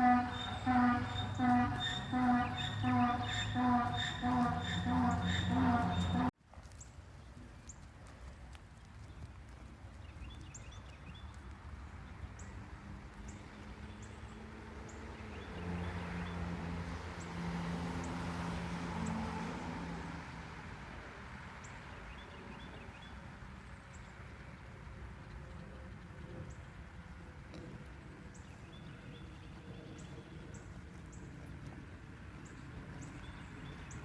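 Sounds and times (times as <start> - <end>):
low steady hum: 0.0 - 6.3
hooves clip-clopping: 0.0 - 14.1.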